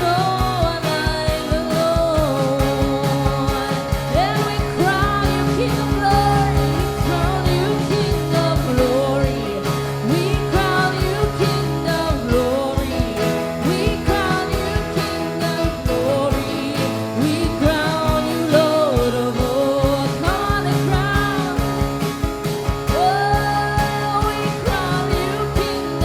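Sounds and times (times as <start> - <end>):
live worship band playing: 0.0 - 26.0
person singing: 0.0 - 26.0
steady drum beat: 0.0 - 26.0.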